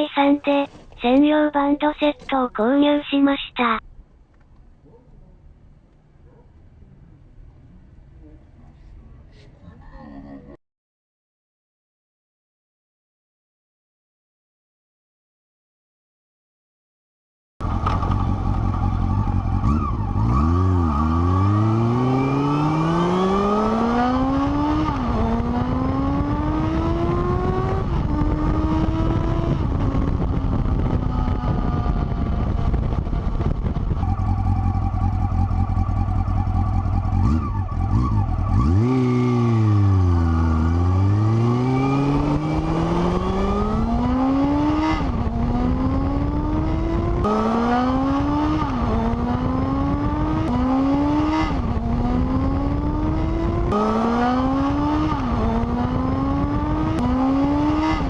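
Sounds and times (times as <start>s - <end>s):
motorcycle engine accelerating: 17.6s - 58.0s.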